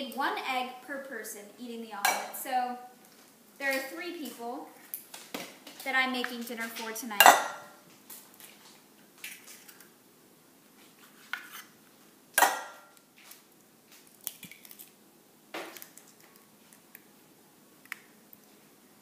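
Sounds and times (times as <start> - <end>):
eggs cracking against dish: 13.9 - 15.0.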